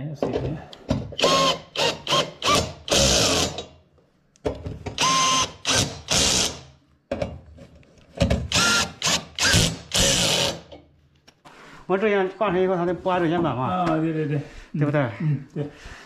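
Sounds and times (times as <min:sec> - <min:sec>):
cordless drill whining: 0:01.2 - 0:03.7, 0:04.9 - 0:06.7, 0:08.5 - 0:10.7.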